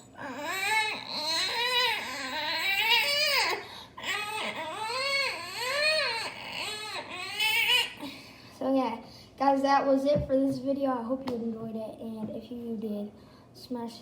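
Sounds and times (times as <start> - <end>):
child imitating baby crying: 0.0 - 8.2.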